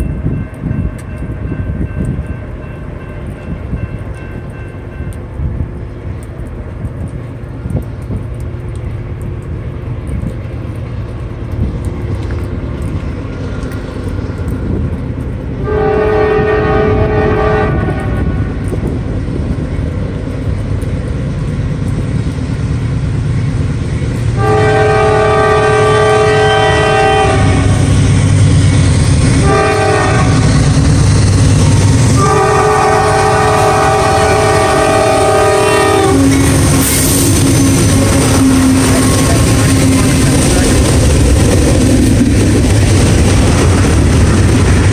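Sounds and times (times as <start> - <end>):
locomotive low rumble: 0.0 - 44.9
train air horn: 15.6 - 18.5, 24.4 - 27.9, 29.4 - 30.6, 32.2 - 40.2.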